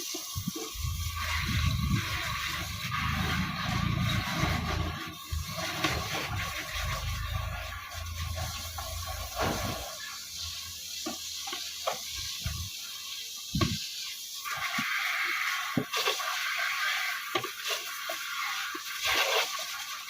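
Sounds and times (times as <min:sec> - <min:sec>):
water splashing during hand washing: 0:00.0 - 0:20.0
low rumble: 0:00.8 - 0:09.8.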